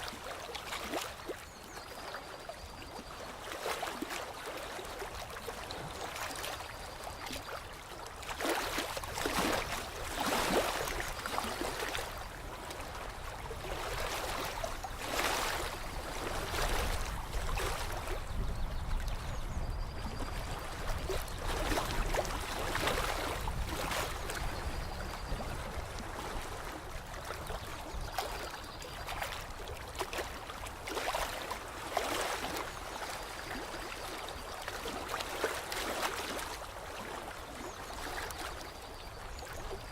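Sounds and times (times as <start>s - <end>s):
water splashing and gurgling: 0.0s - 39.9s.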